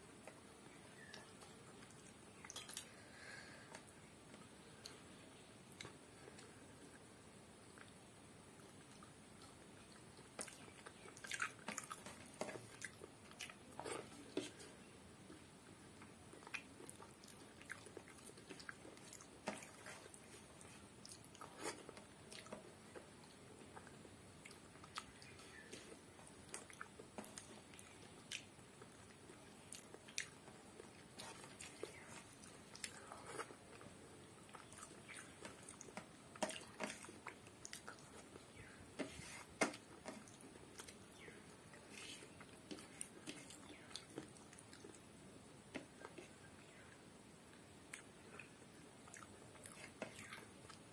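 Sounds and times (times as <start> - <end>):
chewing and mouth smacks: 1.0 - 2.9, 8.6 - 14.7, 16.0 - 45.1, 47.9 - 50.9
fingers mixing food on paper plate: 10.2 - 15.4, 24.5 - 45.0, 49.6 - 50.9.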